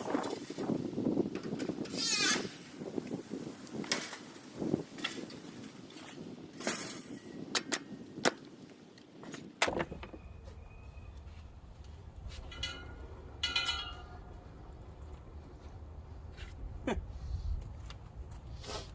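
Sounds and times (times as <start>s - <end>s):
metal parts clanking and knocking: 12.4s - 14.4s
ringing metal clangs: 12.4s - 14.4s.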